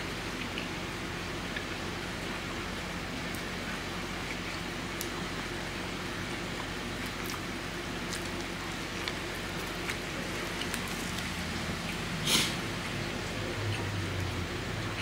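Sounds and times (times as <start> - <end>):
rice ball being chewed: 3.3 - 15.0
steady hiss: 10.1 - 13.7.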